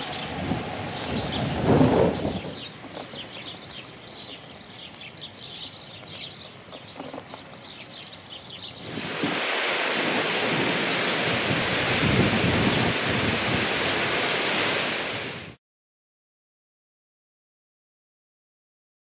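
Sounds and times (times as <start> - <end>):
small birds chirping: 0.0 - 14.2.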